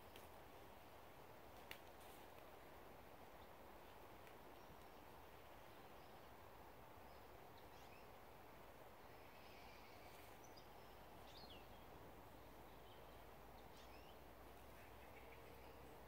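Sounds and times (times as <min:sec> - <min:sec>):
faint steady hiss: 0:00.0 - 0:16.0
faint bird chirps: 0:09.0 - 0:16.0.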